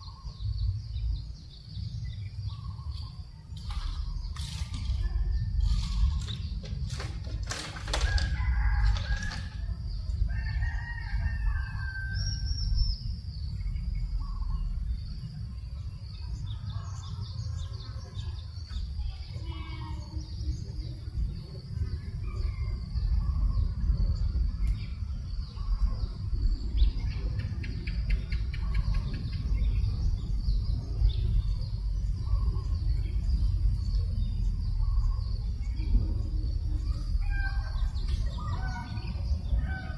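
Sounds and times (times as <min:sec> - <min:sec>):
birds calling and chirping: 0:00.0 - 0:39.9
wind rumble on microphone: 0:00.0 - 0:39.9
sharp flaps or knocks: 0:05.8 - 0:09.6.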